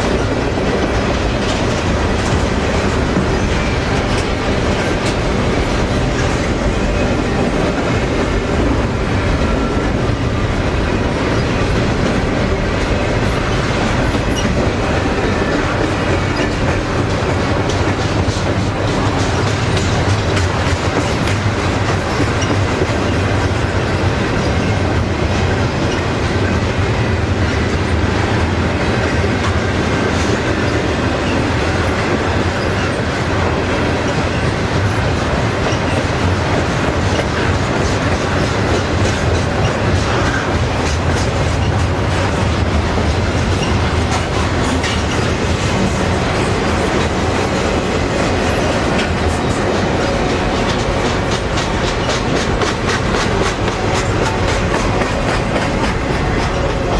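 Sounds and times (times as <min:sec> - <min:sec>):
wheels clicking over rail joints: 0:00.0 - 0:26.6, 0:28.4 - 0:56.9
train wheels rumbling on rail: 0:00.0 - 0:56.9.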